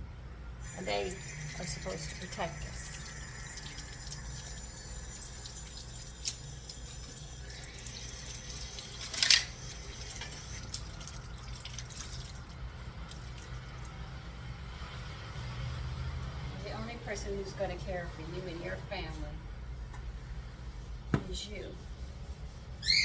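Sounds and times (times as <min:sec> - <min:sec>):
steady low hum: 0:00.0 - 0:11.0
running water splashing: 0:00.6 - 0:14.2.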